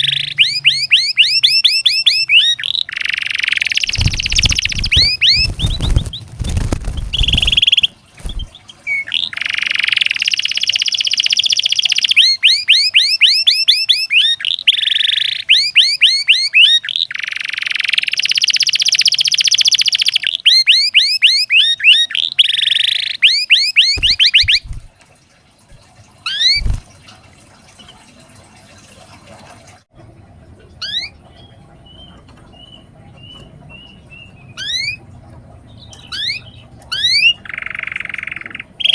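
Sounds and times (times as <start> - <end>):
canary singing trills: 0.0 - 24.9, 26.3 - 26.8, 30.8 - 38.9.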